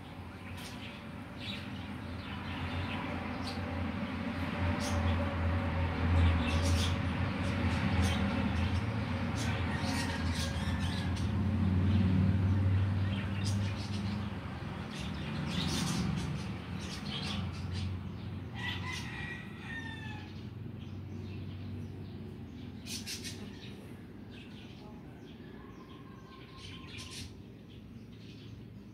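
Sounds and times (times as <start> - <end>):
birds chirping and whistling: 14.9 - 18.0, 22.7 - 23.8, 25.8 - 27.4.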